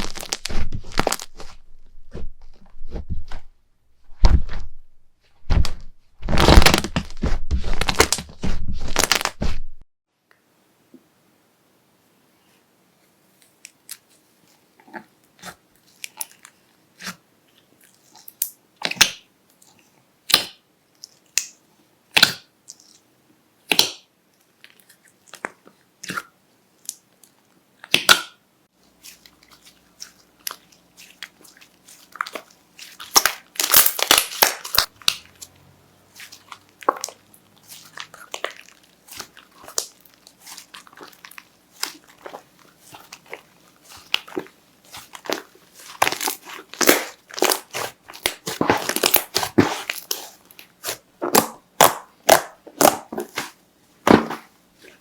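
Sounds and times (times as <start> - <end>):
slime crackling and popping: 0.0 - 1.5, 6.3 - 8.3, 8.9 - 9.3, 29.0 - 35.5, 36.1 - 53.6.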